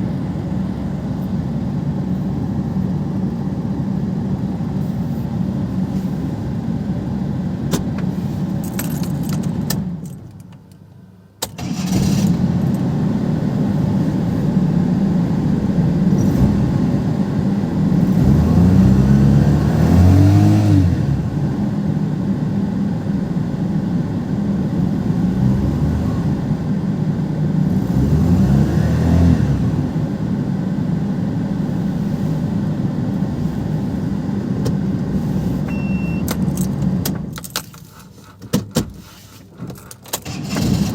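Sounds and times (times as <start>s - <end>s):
car engine revving: 11.6s - 22.7s, 24.2s - 37.2s.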